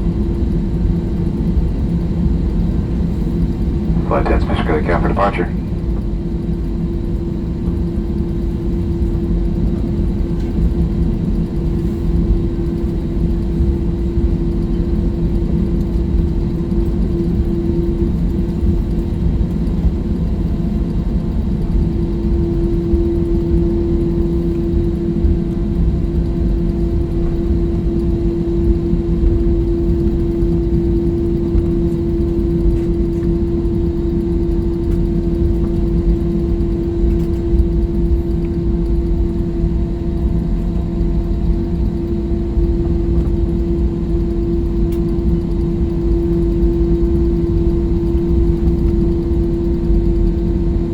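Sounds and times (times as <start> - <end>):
constant cabin hum: 0.0 - 50.9
jet engines rumbling: 3.0 - 7.2.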